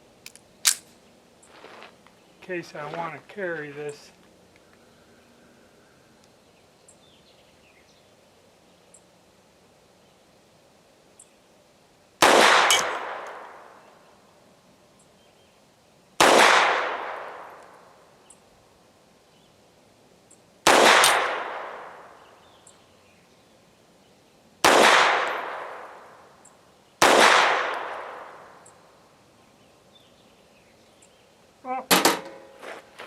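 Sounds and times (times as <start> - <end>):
pistol shots with echo: 12.2 - 13.7, 16.2 - 17.5, 20.7 - 22.2, 24.6 - 26.0, 27.0 - 28.4.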